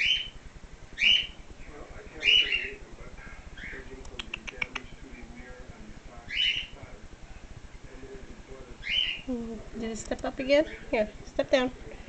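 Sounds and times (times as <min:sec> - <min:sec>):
sharp clicks: 0:04.0 - 0:04.9
bird chick harsh chirps: 0:06.3 - 0:06.8.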